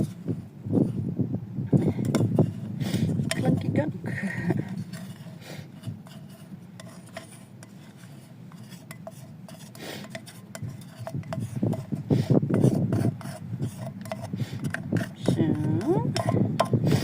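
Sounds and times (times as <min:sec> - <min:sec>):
spoon scraping inside can: 0:01.8 - 0:03.8, 0:04.5 - 0:17.0.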